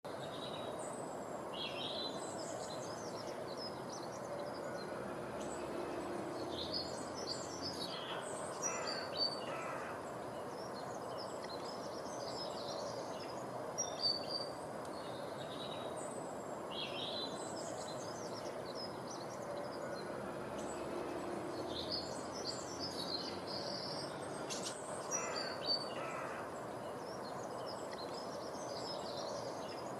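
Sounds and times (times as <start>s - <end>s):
background hiss: 0.1s - 29.9s
birds chirping and calling: 16.8s - 29.9s.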